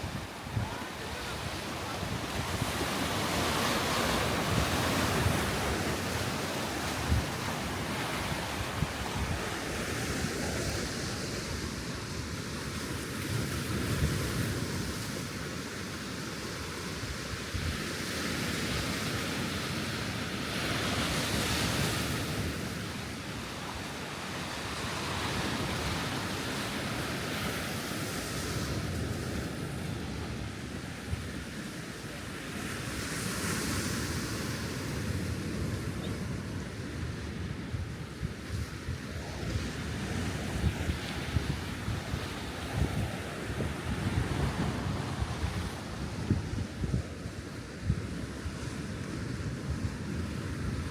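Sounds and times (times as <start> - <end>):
sea waves breaking on shore: 0.0 - 50.9
wind buffeting microphone: 35.3 - 50.9.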